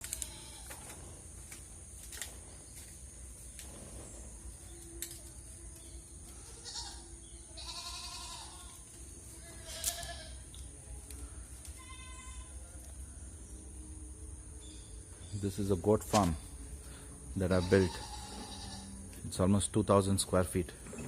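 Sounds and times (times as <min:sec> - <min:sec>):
goats bleating: 0:00.0 - 0:00.8, 0:06.4 - 0:08.8, 0:09.4 - 0:10.4, 0:11.8 - 0:12.6, 0:17.4 - 0:19.1.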